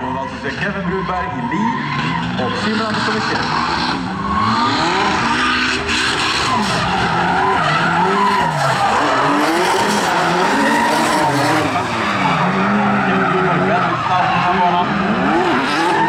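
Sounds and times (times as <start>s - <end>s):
car engines revving: 0.0s - 16.0s
tyres squealing and skidding: 0.0s - 16.0s.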